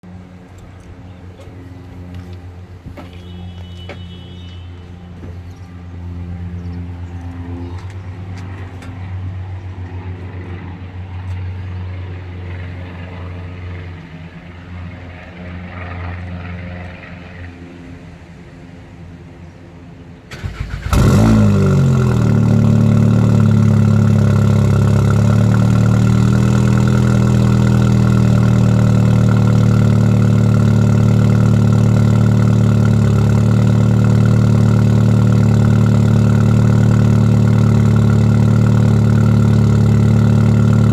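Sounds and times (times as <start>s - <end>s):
car engine starting and idling: 20.3s - 40.9s.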